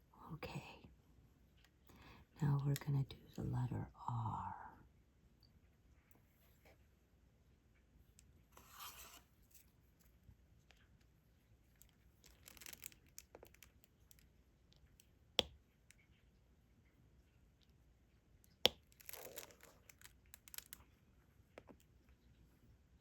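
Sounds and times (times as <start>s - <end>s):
plastic crinkling and rustling: 11.7s - 14.3s, 18.8s - 21.0s.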